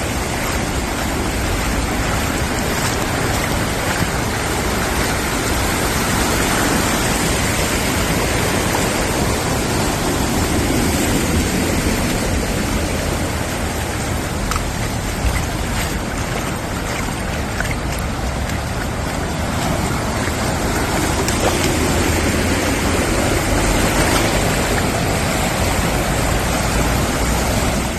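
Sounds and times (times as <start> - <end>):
floodwater rushing: 0.0 - 27.9
faint splashes and clicks: 0.2 - 5.6, 13.8 - 27.0.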